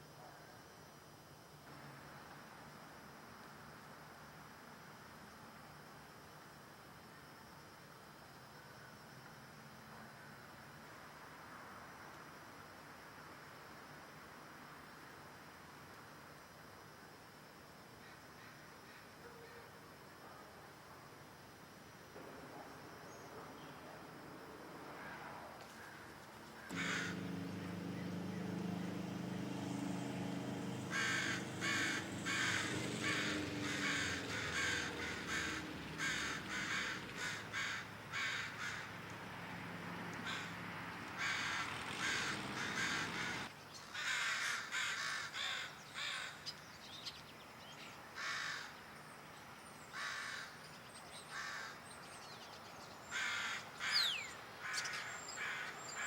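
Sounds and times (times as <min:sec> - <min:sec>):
low engine-like hum: 0:26.1 - 0:43.6
crows cawing: 0:26.7 - 0:39.0, 0:40.2 - 0:46.4, 0:48.2 - 0:48.7, 0:49.9 - 0:50.6, 0:51.3 - 0:51.8, 0:53.1 - 0:56.0.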